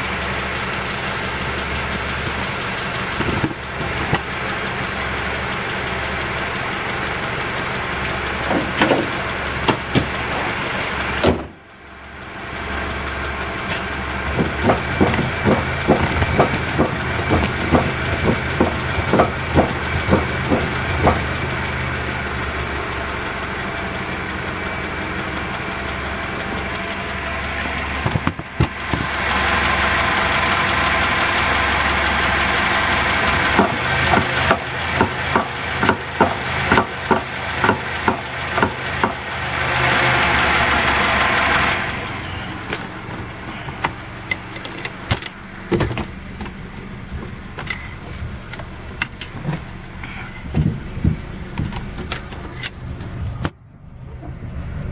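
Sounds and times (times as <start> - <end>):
car running: 0.0 - 54.9
road noise: 0.0 - 54.9
suspension strut clunking: 1.6 - 4.6, 8.0 - 11.6, 13.7 - 22.2, 26.1 - 30.1, 32.5 - 39.3, 41.5 - 53.5.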